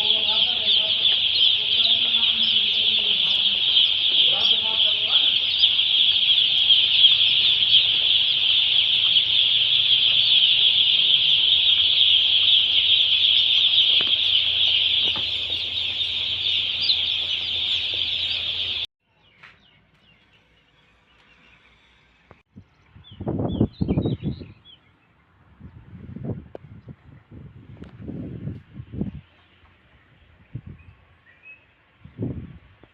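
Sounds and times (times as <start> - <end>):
chickens calling in chorus: 0.0 - 18.9.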